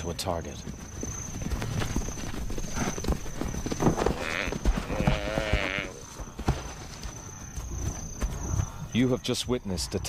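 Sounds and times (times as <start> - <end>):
scuffling thuds: 1.4 - 8.8.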